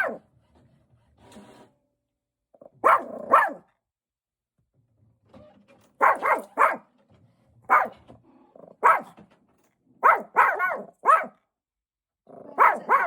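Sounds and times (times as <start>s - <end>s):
dog barking: 0.0s - 0.2s, 2.7s - 3.7s, 6.0s - 6.9s, 7.7s - 8.0s, 8.6s - 9.2s, 10.0s - 11.4s, 12.4s - 13.0s.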